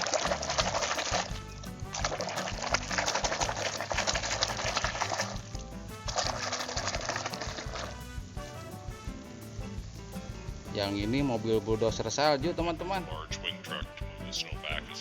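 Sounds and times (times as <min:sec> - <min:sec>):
water spraying hissing stream: 0:00.0 - 0:11.8
background music: 0:00.0 - 0:15.0.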